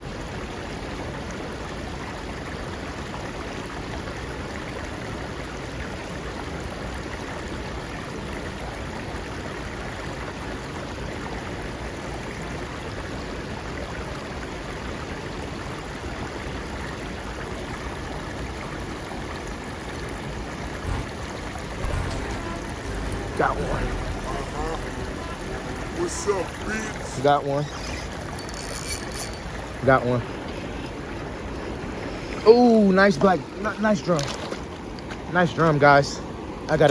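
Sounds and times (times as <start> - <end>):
steady rushing noise: 20.4 - 27.6.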